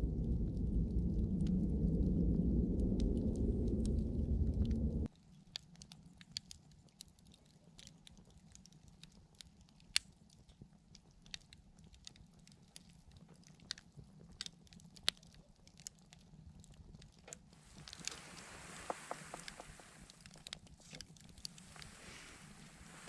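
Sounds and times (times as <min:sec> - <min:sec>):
faint low hum: 0:00.0 - 0:05.1
campfire crackling: 0:00.0 - 0:23.0.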